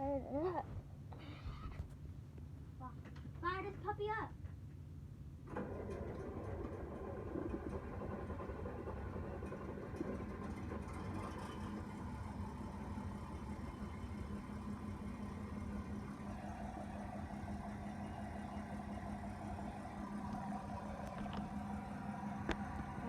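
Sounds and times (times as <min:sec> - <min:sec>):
tractor diesel engine idling: 0:05.6 - 0:23.0.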